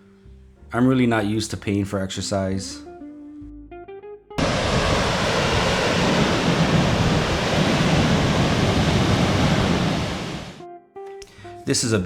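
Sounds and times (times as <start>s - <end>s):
waterfall rushing: 4.4s - 10.6s.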